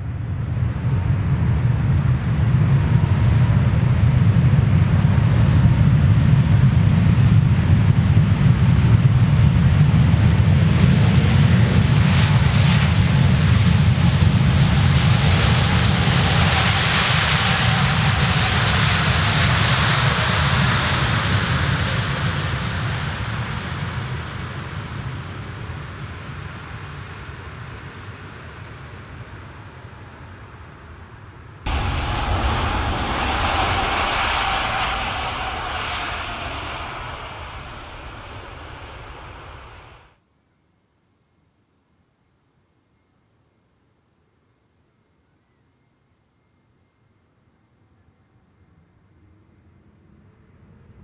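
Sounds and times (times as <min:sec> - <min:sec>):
jet airliner passing overhead: 0:00.0 - 0:26.0, 0:31.7 - 0:40.1.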